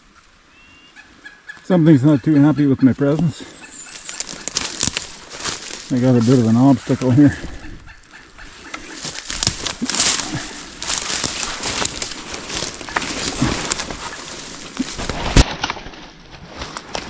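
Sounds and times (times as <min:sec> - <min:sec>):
footsteps: 0:02.9 - 0:17.0
brush crackling and snapping: 0:03.6 - 0:07.4, 0:08.1 - 0:17.0.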